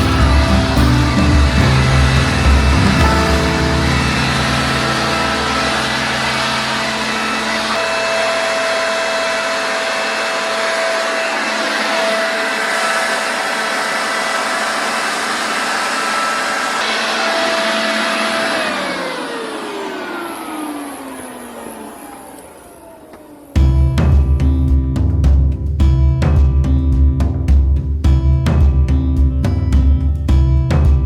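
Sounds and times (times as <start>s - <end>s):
electric motor whining: 0.0s - 23.6s.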